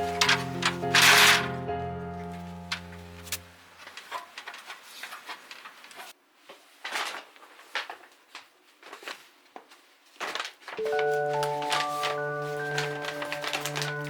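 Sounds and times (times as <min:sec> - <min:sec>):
music note: 0:00.0 - 0:03.6, 0:10.8 - 0:14.0.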